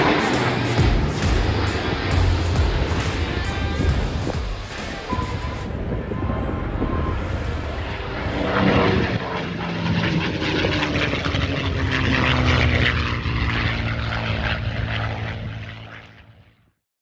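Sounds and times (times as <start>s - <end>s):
propeller airplane flying past: 0.0s - 16.7s.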